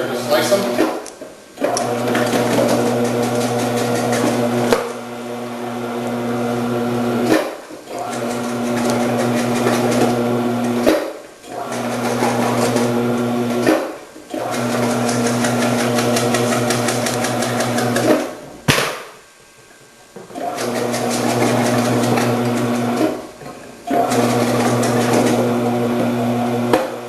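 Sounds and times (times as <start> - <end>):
vegetable slicer motor hum: 1.6 - 10.9, 11.5 - 18.3, 20.4 - 23.2, 23.9 - 27.0
sharp knock: 18.7 - 19.2.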